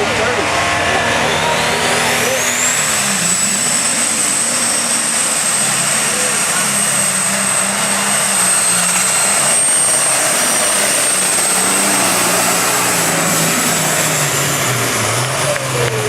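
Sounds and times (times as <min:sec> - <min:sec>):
high-pitched whine: 0:00.0 - 0:16.0
tractor engine under load: 0:00.0 - 0:16.0.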